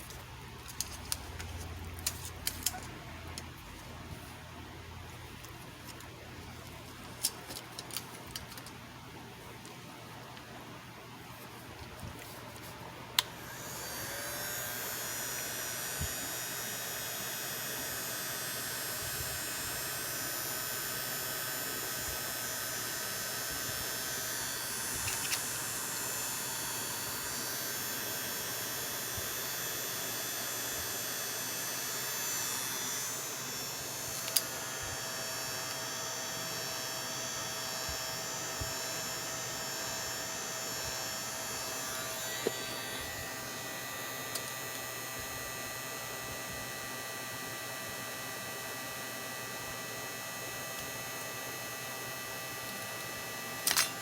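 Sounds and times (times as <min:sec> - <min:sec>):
small electric motor whining: 0:13.3 - 0:54.0.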